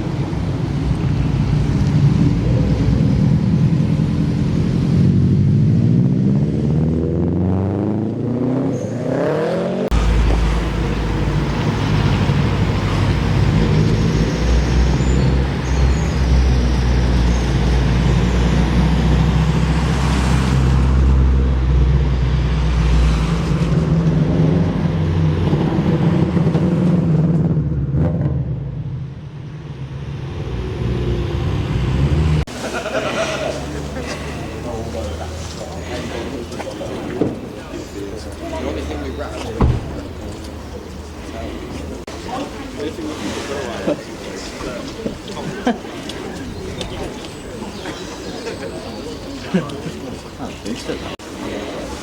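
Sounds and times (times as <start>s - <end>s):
light vehicle noise: 0.0s - 7.4s, 8.0s - 52.0s
car engine rumbling: 0.0s - 52.0s.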